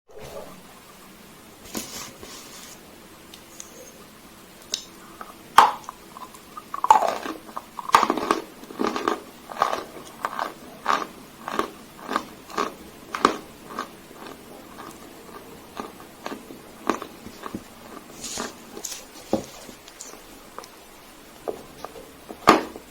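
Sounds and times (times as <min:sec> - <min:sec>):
chalk being chewed: 0:06.2 - 0:20.8.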